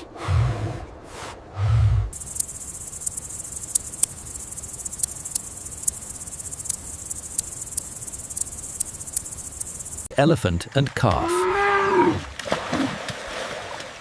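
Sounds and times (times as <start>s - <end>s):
low rumbling animal call: 0.0s - 2.2s
insects chirring: 2.1s - 12.2s
sharp clicks: 2.2s - 10.1s.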